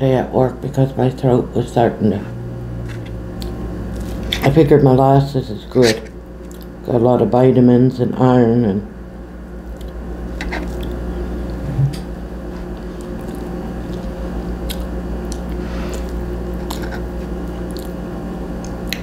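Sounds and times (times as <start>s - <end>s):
low hum: 0.0s - 19.0s
person chewing: 3.3s - 4.5s, 5.9s - 6.8s, 9.7s - 11.6s, 12.6s - 19.0s.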